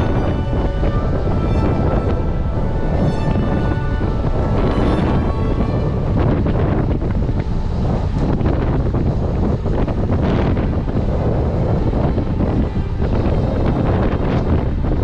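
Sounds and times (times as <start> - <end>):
heavy wind buffeting microphone: 0.0 - 15.0.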